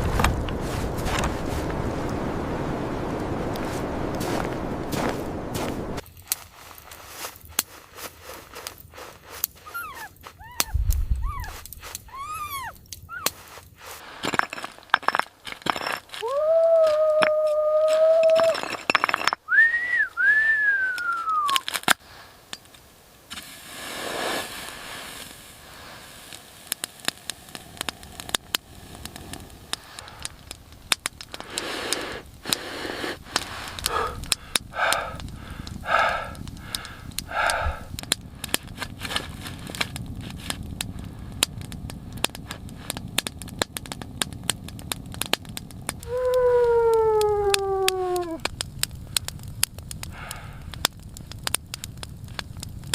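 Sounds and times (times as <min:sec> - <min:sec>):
noisy bursts: 0:00.0 - 0:06.0
crackling: 0:00.0 - 0:52.9
puppy whimpering: 0:09.7 - 0:13.3.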